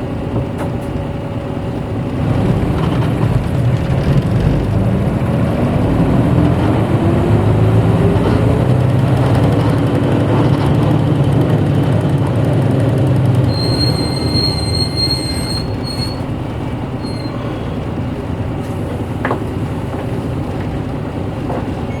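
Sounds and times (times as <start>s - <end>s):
bus diesel engine humming: 0.0s - 22.0s
high brake squeal: 13.4s - 18.0s.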